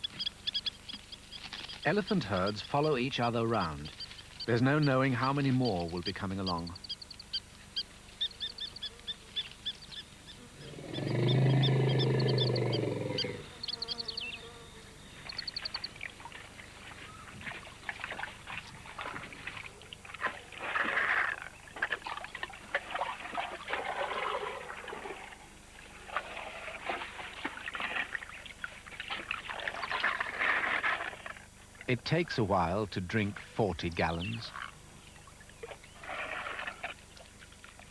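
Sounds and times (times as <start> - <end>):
small birds twittering: 0.0 - 20.6, 29.4 - 30.3, 32.7 - 36.1
elephant rumble: 10.4 - 13.6
water splashing and gurgling: 17.4 - 31.1, 35.6 - 37.9.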